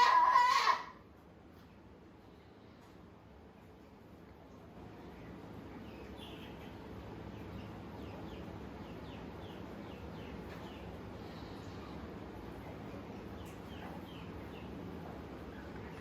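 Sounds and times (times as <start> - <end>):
steady low hum: 0.0 - 16.0
small bird chirping: 5.1 - 11.0.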